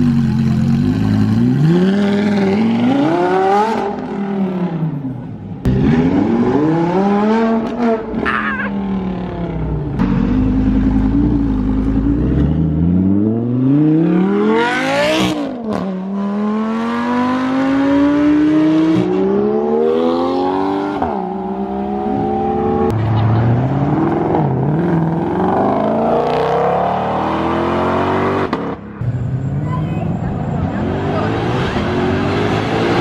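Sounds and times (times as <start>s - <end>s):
car engine revving through gears: 1.2s - 4.8s, 5.6s - 8.2s, 9.4s - 23.0s, 23.6s - 28.8s, 30.7s - 33.0s.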